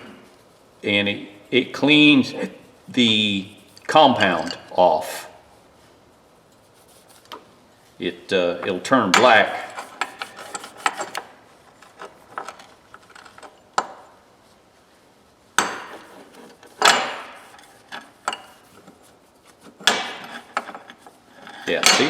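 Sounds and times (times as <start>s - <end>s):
metal wrenches clinking: 3.7s - 4.8s, 9.1s - 14.1s, 15.6s - 19.0s, 19.8s - 22.0s.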